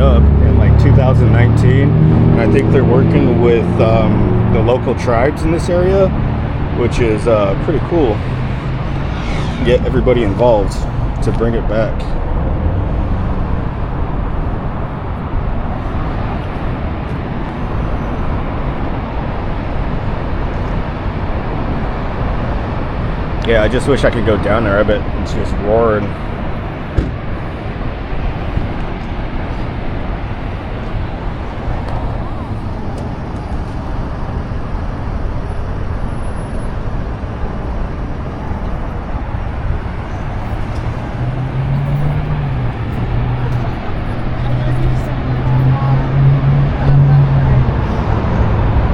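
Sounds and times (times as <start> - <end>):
passing vehicle engine hum: 0.0 - 48.9
road traffic rumble: 0.0 - 48.9.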